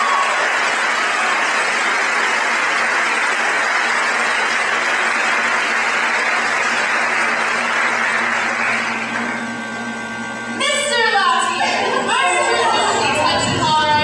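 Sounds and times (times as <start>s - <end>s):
audience applauding: 0.0s - 10.2s
audience cheering: 0.0s - 10.5s.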